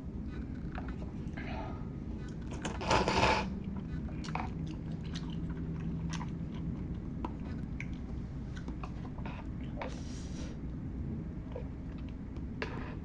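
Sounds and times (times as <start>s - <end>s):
wet chewing and mouth smacks: 3.6s - 9.8s.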